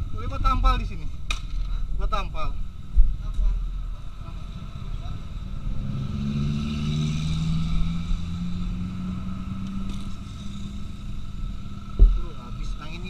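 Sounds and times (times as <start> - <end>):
motorcycle engine running: 2.6 - 13.0.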